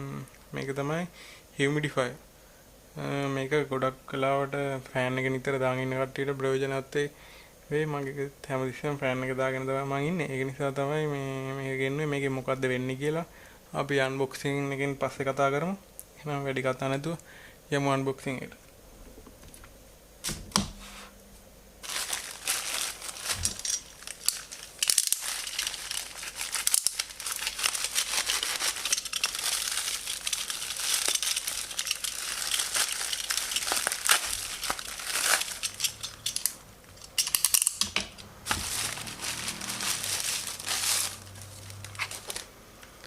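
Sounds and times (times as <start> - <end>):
packaging tearing and crinkling: 21.8 - 36.6, 37.2 - 37.8, 38.4 - 42.5.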